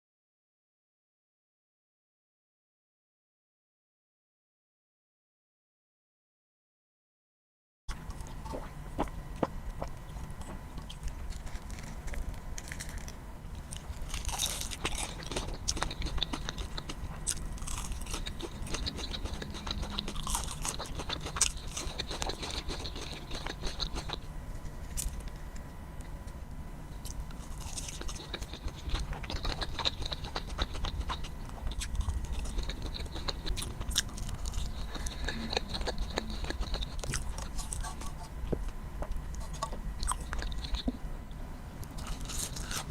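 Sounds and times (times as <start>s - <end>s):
biting and chewing crispy food: 7.9s - 26.3s, 27.0s - 41.1s, 41.8s - 42.9s.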